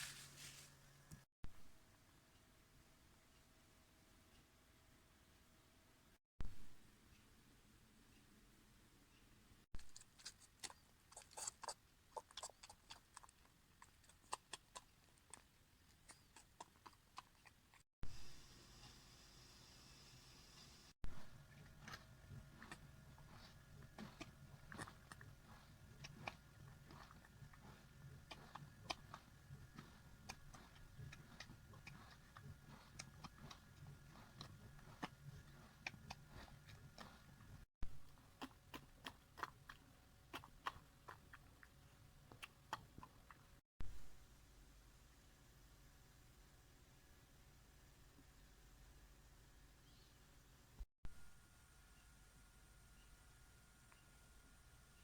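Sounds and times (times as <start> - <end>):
dog eating with smacking sounds: 9.8 - 17.8, 21.1 - 43.6.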